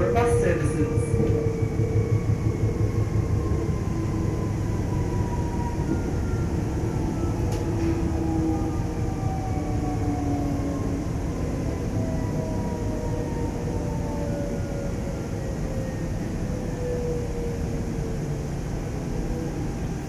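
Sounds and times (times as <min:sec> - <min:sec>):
train wheels rumbling: 0:00.0 - 0:08.3.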